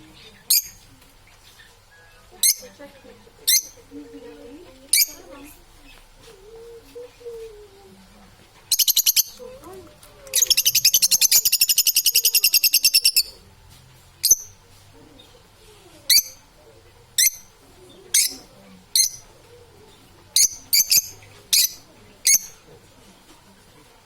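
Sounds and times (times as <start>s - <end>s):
parrot chattering and chirping: 0.2s - 0.8s, 2.4s - 2.8s, 3.4s - 4.0s, 4.9s - 5.4s, 8.6s - 13.4s, 14.2s - 14.6s, 16.1s - 19.4s, 20.1s - 22.7s.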